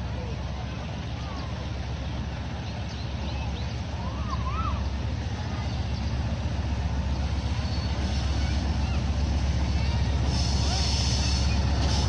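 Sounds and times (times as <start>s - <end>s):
diesel locomotive rumbling: 0.0s - 12.0s.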